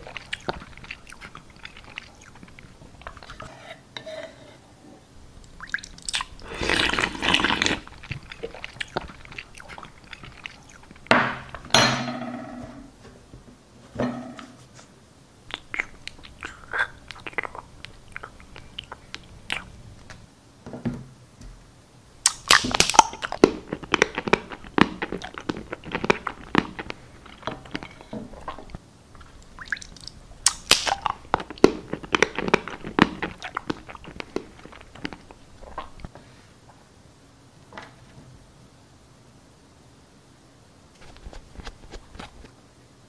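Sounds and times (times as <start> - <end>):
chewing and crunching: 0.0 - 3.5, 5.7 - 11.6, 15.5 - 19.7, 22.2 - 36.1
wet mouth clicks: 0.0 - 3.5, 5.6 - 11.6, 15.5 - 19.8, 22.2 - 36.1.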